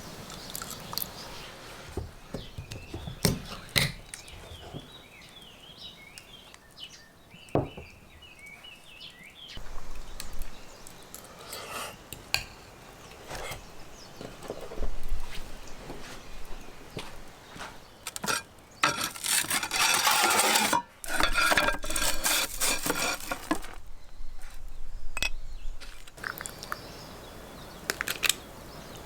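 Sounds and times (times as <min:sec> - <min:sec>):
small birds chirping: 0:00.0 - 0:19.1, 0:23.9 - 0:29.0.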